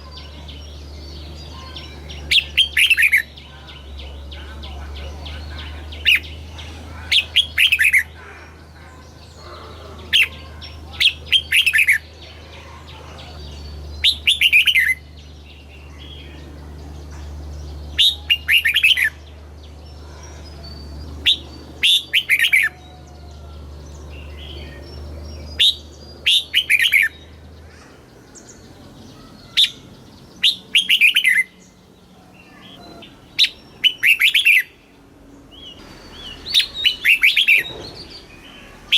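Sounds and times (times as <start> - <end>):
bird singing whistled notes: 17.6 - 27.4, 29.1 - 34.8, 35.5 - 38.9.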